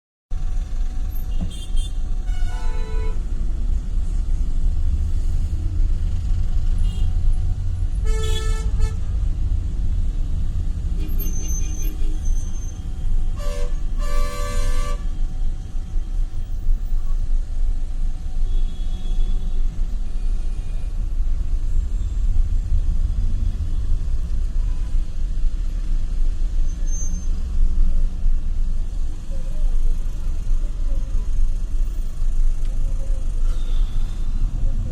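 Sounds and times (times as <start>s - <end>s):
rumble of passing vehicles: 0.3s - 34.9s
vehicle horns honking: 1.3s - 3.2s, 6.8s - 7.2s, 7.9s - 9.1s, 13.4s - 15.1s.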